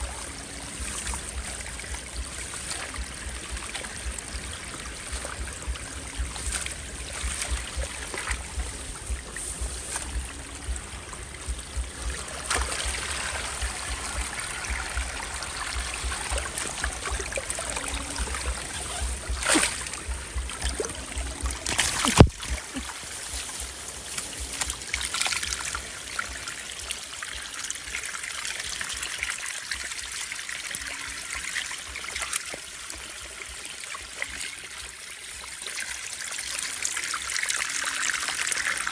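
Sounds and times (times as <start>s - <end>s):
small splashes: 0.0s - 27.1s
water trickling: 0.0s - 38.9s.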